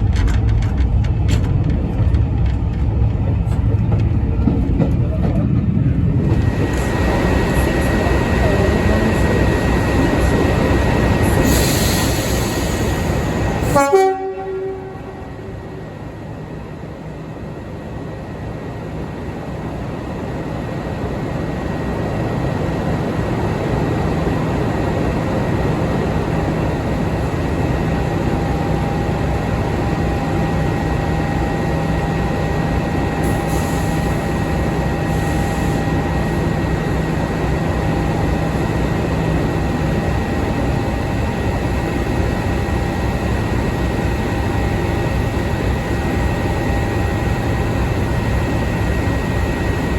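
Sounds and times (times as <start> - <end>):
diesel locomotive engine: 0.0 - 49.9
locomotive horn blast: 13.6 - 15.6.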